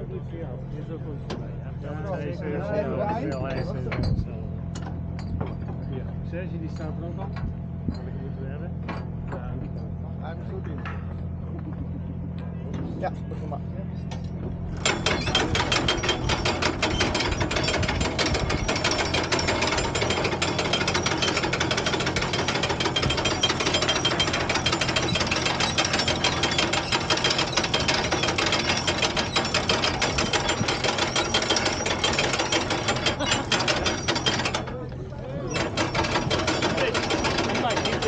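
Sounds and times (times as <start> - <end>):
hand winch ratchet clicking: 14.8 - 34.8, 35.5 - 38.0.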